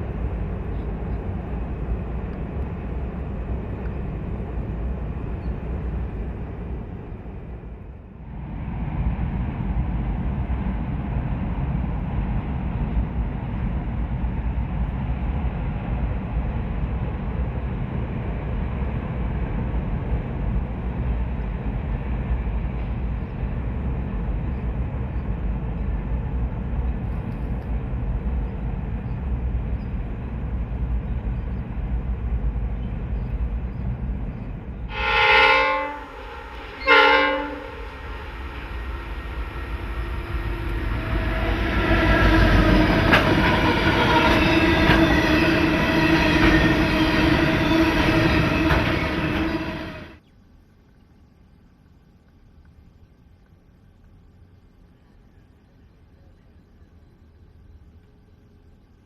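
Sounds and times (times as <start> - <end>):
train wheels clicking on rails: 0.0 - 7.5, 9.2 - 34.8, 36.1 - 50.2
low steady rumble: 0.0 - 59.0
locomotive horn blasts: 34.9 - 37.9
locomotive engine running loud: 37.4 - 50.2.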